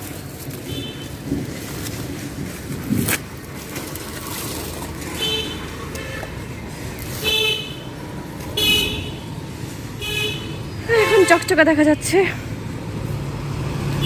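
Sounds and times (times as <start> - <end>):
traffic rumble: 0.0 - 14.0
vehicle horns honking: 5.2 - 6.4, 7.2 - 7.9, 8.5 - 9.4, 10.0 - 11.8.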